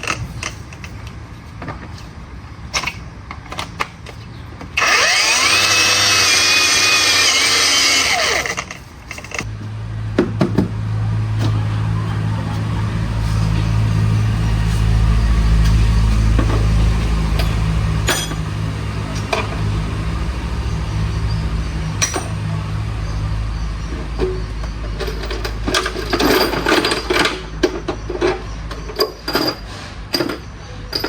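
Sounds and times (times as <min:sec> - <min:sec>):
machine humming: 0:04.8 - 0:09.6.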